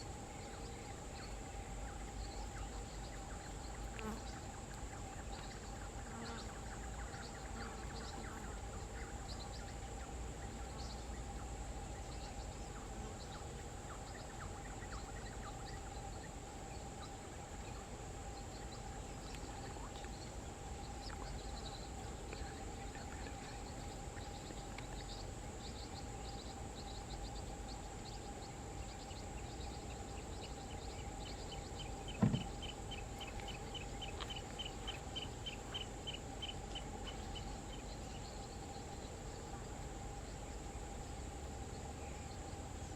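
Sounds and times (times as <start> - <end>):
insect hum: 0.0 - 42.9
bird chirps: 0.3 - 40.3
brief thump: 32.2 - 32.6.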